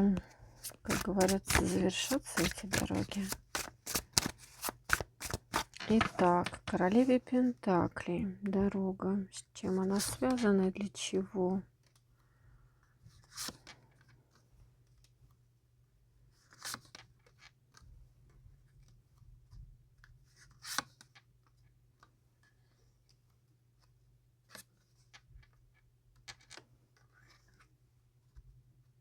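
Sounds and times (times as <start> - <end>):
cards swishing and tapping: 0.1 - 6.8.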